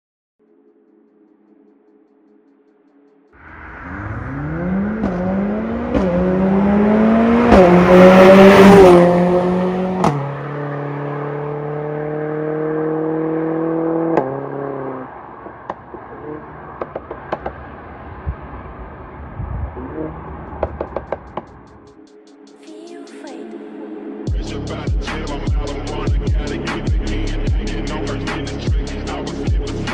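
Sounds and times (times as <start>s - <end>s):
car exhaust accelerating: 3.4s - 21.9s
exhaust cracks on upshifts: 13.4s - 18.6s, 19.7s - 21.9s
exhaust ticks and pops: 15.7s - 15.9s, 16.8s - 17.6s, 20.6s - 21.9s.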